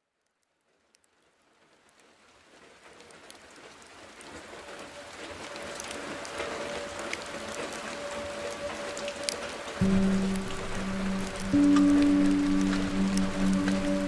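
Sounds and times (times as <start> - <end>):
heavy rain: 0.6 - 14.0
steady tone: 9.8 - 14.0.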